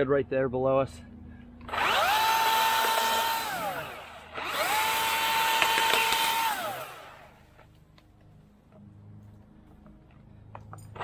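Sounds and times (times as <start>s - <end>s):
mini chainsaw whine: 1.6s - 7.4s.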